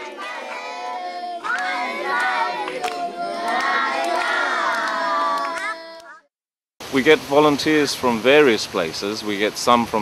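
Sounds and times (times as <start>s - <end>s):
children singing together: 0.0s - 6.3s.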